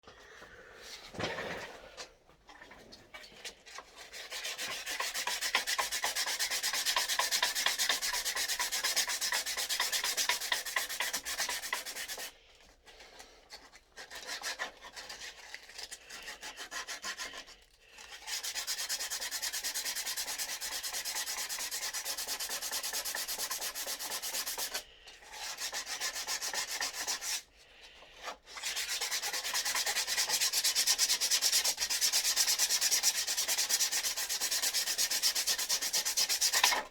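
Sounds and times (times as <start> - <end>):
sandpaper rubbing on wood: 4.0 - 12.3, 14.0 - 27.4, 28.5 - 36.8.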